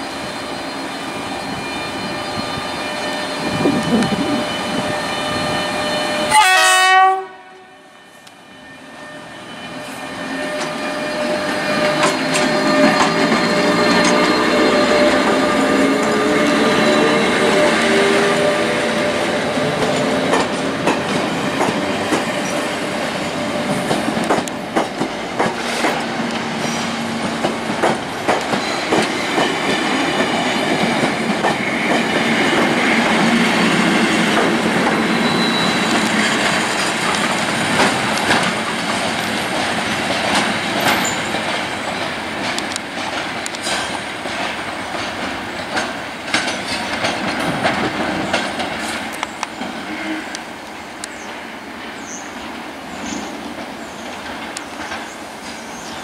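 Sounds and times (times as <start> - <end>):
train wheels rumbling on rail: 0.0 - 56.0
wheels clicking over rail joints: 19.1 - 22.6, 23.7 - 26.5, 27.2 - 35.1, 35.8 - 49.8.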